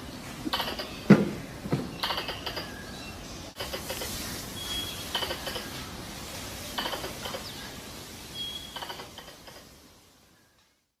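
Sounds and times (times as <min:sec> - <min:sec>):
squirrel chattering clicks: 0:02.0 - 0:02.8, 0:05.0 - 0:05.8, 0:06.8 - 0:07.6, 0:08.7 - 0:09.8.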